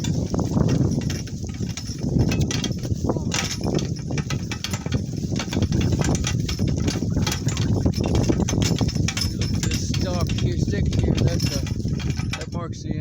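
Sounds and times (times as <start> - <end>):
donkey hoofbeats: 0.0 - 12.5
cart rattling and knocking: 0.0 - 12.7
cart wheels rumbling: 0.0 - 12.8.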